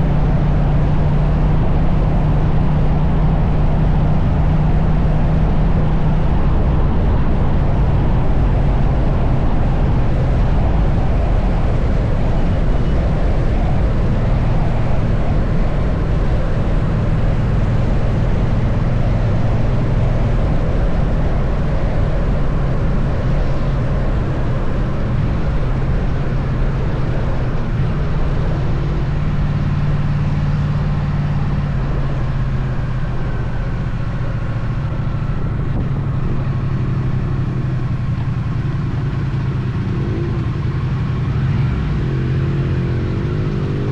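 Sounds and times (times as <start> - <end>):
motorcycle engine running: 0.0 - 43.9
wind noise on microphone: 0.0 - 43.9.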